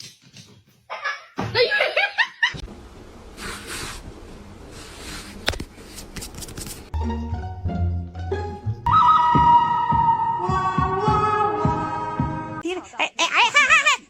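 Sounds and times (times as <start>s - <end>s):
person laughing: 13.0s - 14.0s.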